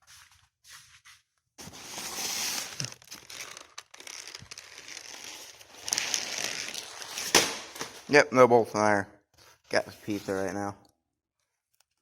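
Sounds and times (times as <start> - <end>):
plastic crinkling and rustling: 1.6 - 8.1.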